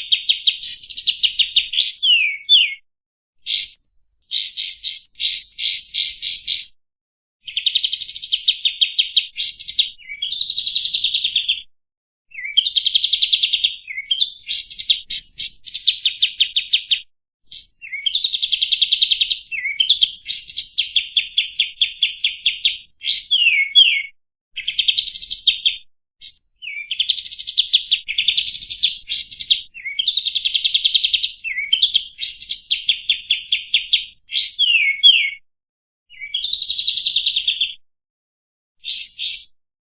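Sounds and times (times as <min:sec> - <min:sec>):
songbird chattering trills: 0:00.0 - 0:02.8, 0:03.5 - 0:06.7.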